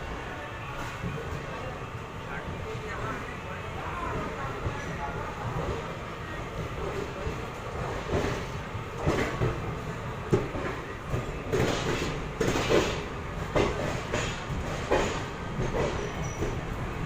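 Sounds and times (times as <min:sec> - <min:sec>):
train wheels rumbling on track: 0:00.0 - 0:17.0
clanks over rail joints: 0:10.3 - 0:16.7.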